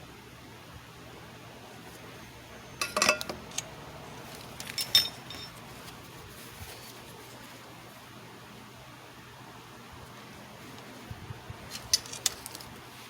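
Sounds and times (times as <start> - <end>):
small hard objects clinking: 4.2 - 5.7.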